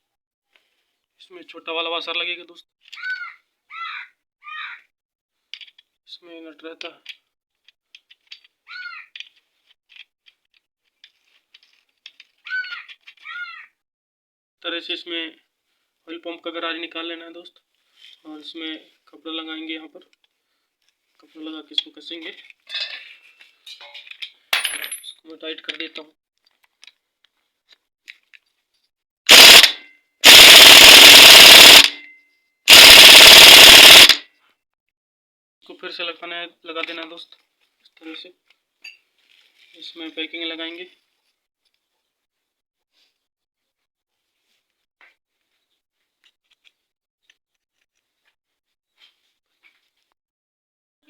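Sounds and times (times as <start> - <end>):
pneumatic impact wrench hammering: 29.3 - 32.0, 32.7 - 34.2.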